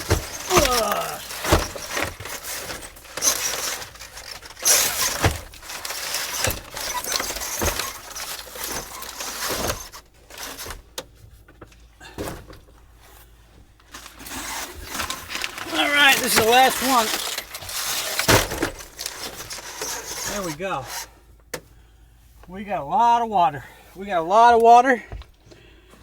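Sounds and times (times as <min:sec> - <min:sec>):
water bottles knocking and thumping: 0:00.0 - 0:10.6
plastic rustling: 0:00.0 - 0:11.0, 0:13.0 - 0:21.2.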